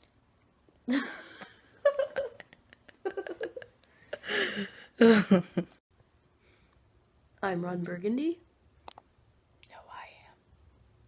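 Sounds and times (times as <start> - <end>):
people laughing and giggling: 0.9 - 5.7.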